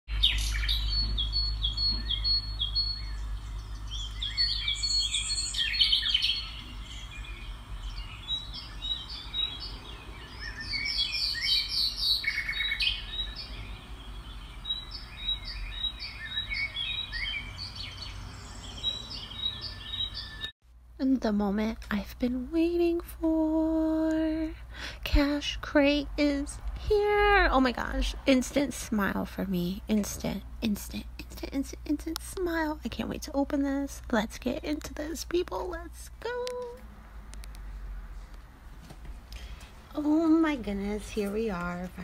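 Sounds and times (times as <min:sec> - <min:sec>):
songbirds chirping and trilling: 0:00.1 - 0:20.5.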